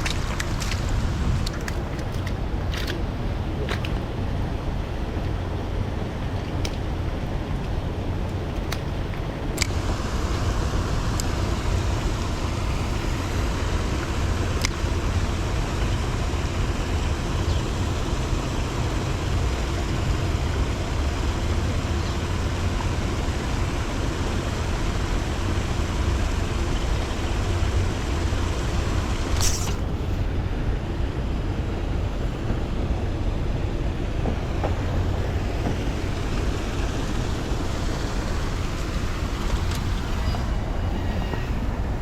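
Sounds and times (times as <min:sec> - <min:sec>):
heavy low rumble: 0:00.0 - 0:42.0
sharp clicks: 0:28.8 - 0:30.0.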